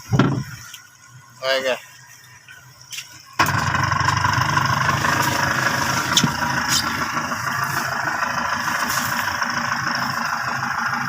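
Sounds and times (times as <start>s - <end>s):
boat engine running: 3.4s - 11.0s.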